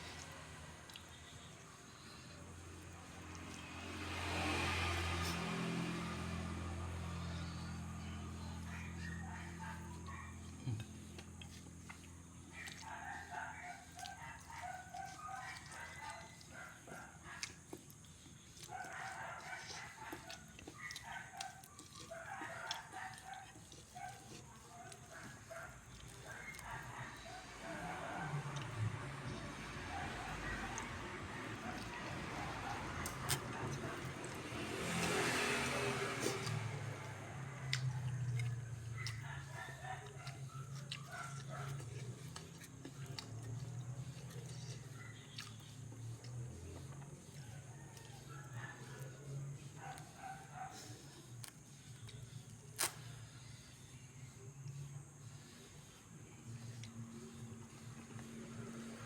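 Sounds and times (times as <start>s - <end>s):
person chewing food: 0.0s - 59.0s
mouth and crunch clicks: 9.4s - 27.2s, 28.4s - 49.1s, 49.9s - 53.2s
rooster-like crows: 47.4s - 48.9s.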